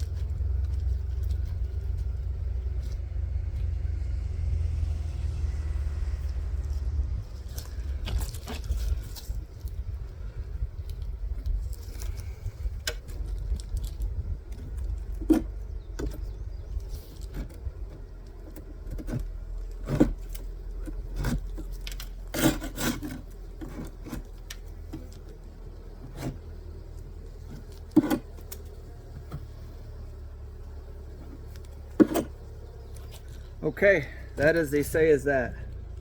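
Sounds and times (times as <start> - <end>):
low rumble: 0.0 - 17.9
knocks and clicks of beehive: 10.4 - 33.6.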